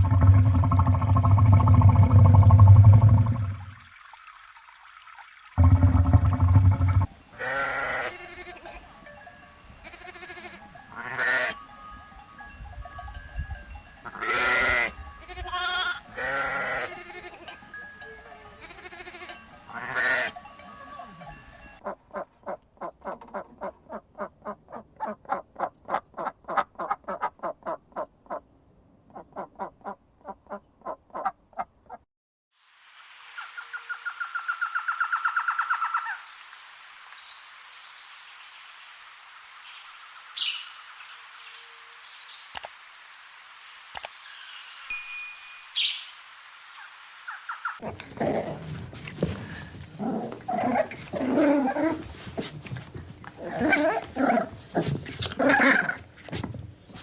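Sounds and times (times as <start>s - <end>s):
farm animals bleating: 7.4s - 9.0s, 9.8s - 11.6s, 14.0s - 17.8s, 18.4s - 22.0s.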